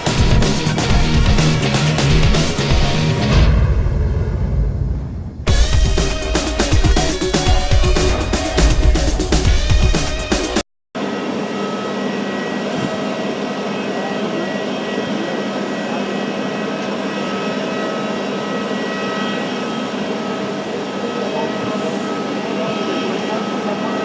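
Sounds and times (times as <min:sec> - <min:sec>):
jet engines running: 0:00.0 - 0:10.6.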